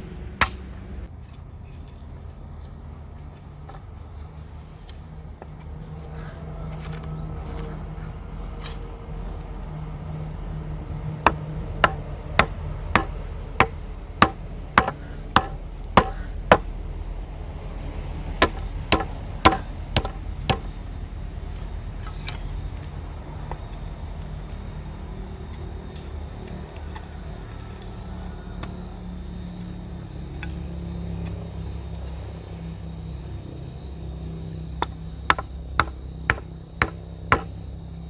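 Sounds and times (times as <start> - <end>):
high insect trill: 0.0 - 38.0
tool strikes on wood: 11.3 - 16.7, 18.4 - 20.7, 34.8 - 37.5.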